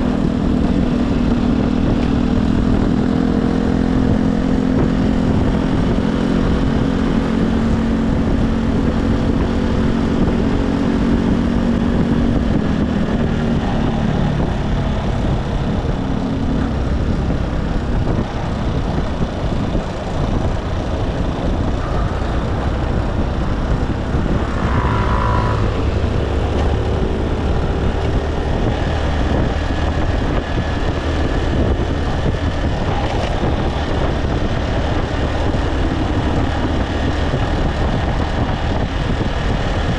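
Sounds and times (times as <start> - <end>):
motorcycle engine running: 0.0 - 39.9
wind and road noise: 0.0 - 39.9
brief high tone: 21.7 - 26.1.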